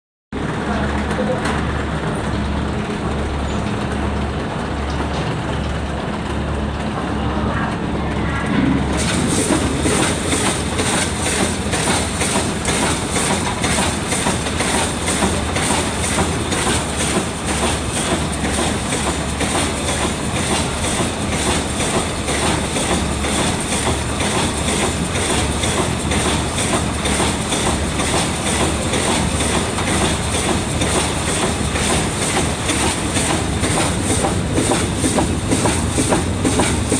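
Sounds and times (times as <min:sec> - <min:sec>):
packing machine clattering: 0:09.0 - 0:36.9.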